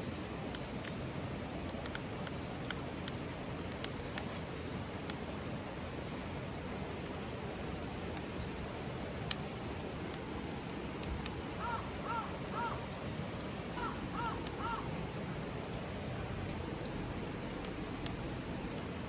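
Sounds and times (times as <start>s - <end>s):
faint clicks: 0.1s - 5.2s, 8.1s - 12.6s
crow cawing: 11.6s - 12.8s, 13.8s - 14.9s.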